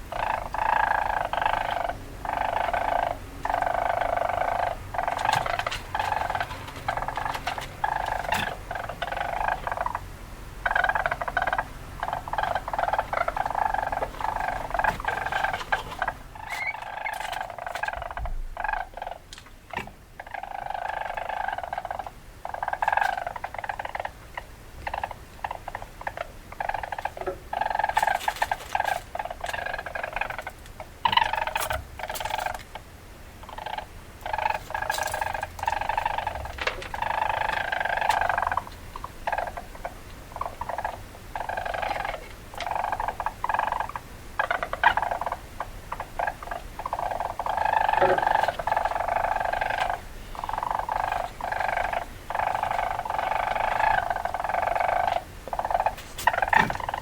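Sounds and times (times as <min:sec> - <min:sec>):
weasel chattering and squeaking: 0:00.0 - 0:57.0.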